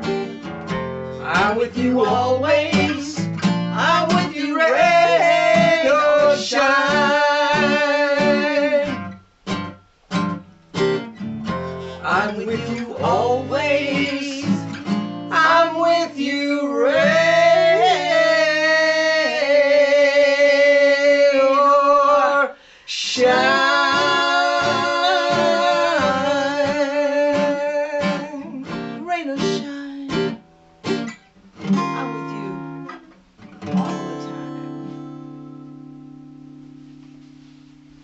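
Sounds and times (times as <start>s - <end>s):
acoustic guitar: 0.0s - 38.0s
person singing long notes: 3.9s - 9.2s, 11.9s - 30.3s.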